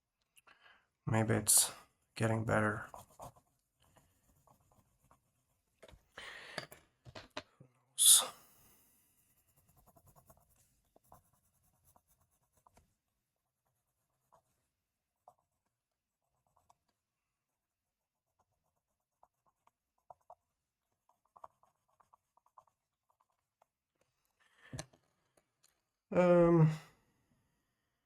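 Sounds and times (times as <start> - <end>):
drawing strokes scratching paper: 2.8 - 5.7, 9.0 - 23.8.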